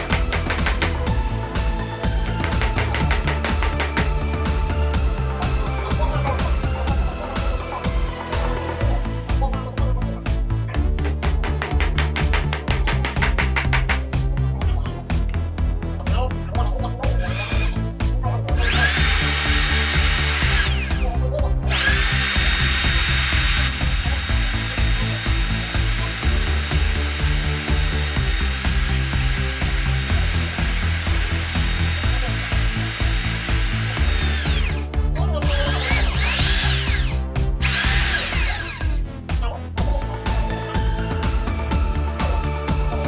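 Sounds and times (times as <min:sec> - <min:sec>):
power drill motor whining: 0:00.0 - 0:01.1, 0:02.2 - 0:04.4, 0:17.2 - 0:17.8, 0:18.6 - 0:34.8, 0:35.4 - 0:39.0
background music: 0:00.0 - 0:43.0.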